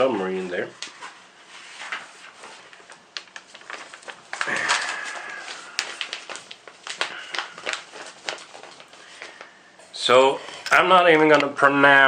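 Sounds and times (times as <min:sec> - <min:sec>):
paper sheet rustling: 0:00.2 - 0:09.6.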